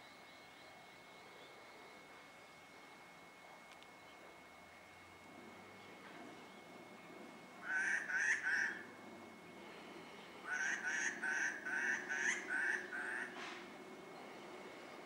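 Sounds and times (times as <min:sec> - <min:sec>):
bird calling harshly: 0:07.6 - 0:08.9, 0:10.4 - 0:13.6.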